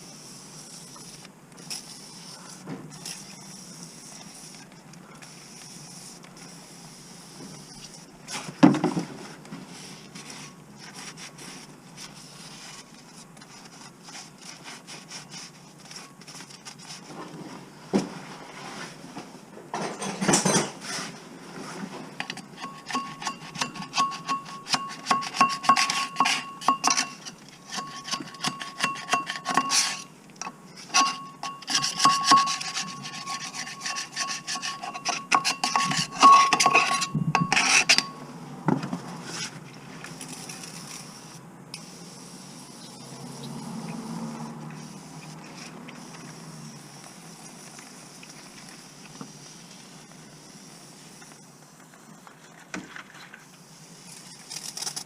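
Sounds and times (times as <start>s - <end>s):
rubbing and scraping strokes: 0.0s - 19.3s, 20.7s - 30.1s, 30.7s - 38.2s.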